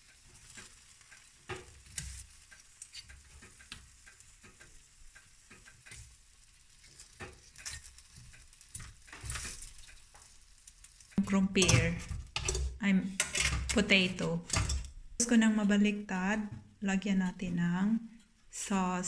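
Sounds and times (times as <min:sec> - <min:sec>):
meat sizzling on grill: 0:00.0 - 0:11.2
utensil scraping grill: 0:00.0 - 0:15.7.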